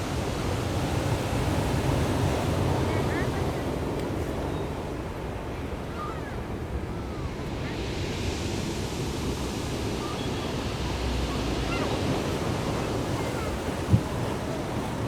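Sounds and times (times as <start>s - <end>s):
surf breaking on shore: 7.3s - 15.0s.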